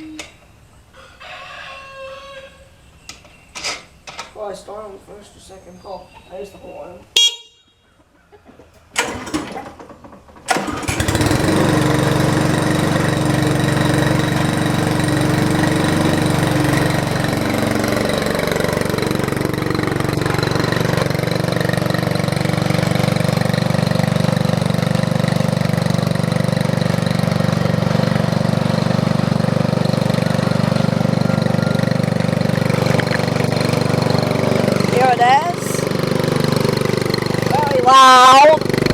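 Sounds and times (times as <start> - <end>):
lawnmower engine pull-started: 8.7 - 38.9.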